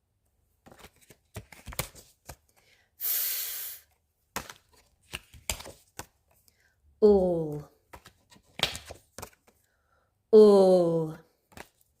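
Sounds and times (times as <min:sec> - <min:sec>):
woman making long f sound: 0:10.4 - 0:11.2.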